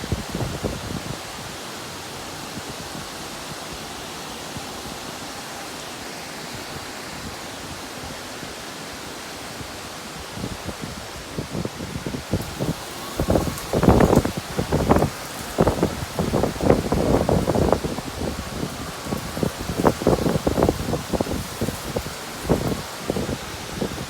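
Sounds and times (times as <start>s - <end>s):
low buffeting wind gusts: 0.0s - 1.6s, 10.1s - 24.0s
heavy rain hissing: 0.0s - 24.0s.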